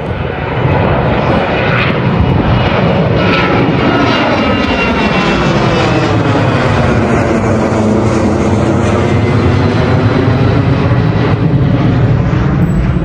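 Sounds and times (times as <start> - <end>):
airplane engine rumble: 0.0 - 13.0.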